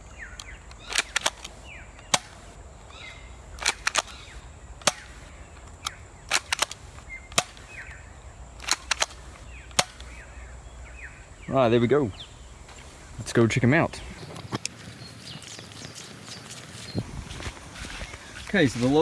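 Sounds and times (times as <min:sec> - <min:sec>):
toy pistol cocking clicks: 0:00.2 - 0:08.0, 0:08.6 - 0:10.2
toy pistol shot snap: 0:00.4 - 0:02.5, 0:03.6 - 0:07.9, 0:08.6 - 0:10.2.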